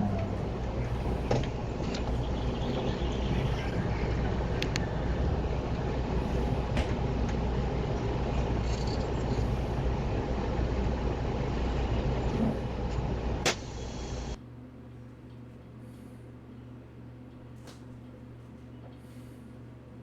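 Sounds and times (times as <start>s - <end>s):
vehicle road and engine rumble: 0.0s - 14.4s.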